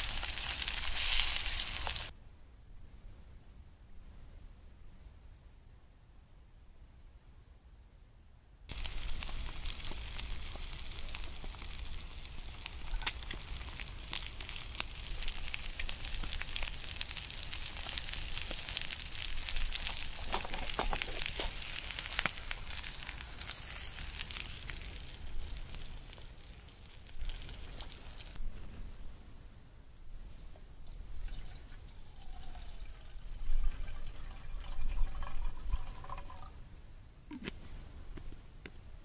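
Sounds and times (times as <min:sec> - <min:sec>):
food sizzling and popping in pan: 0:00.0 - 0:02.1, 0:08.7 - 0:28.4.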